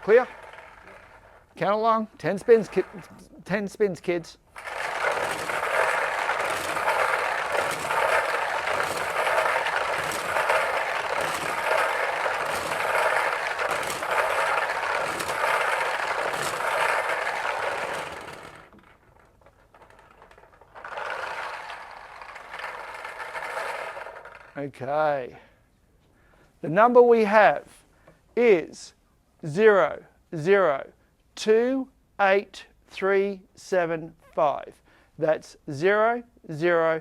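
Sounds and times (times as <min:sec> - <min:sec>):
lottery balls rattling in drum: 0:00.0 - 0:24.7.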